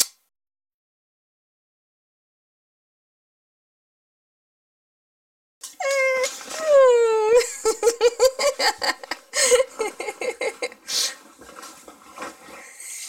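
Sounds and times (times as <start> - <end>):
dog whining: 5.7 - 7.5.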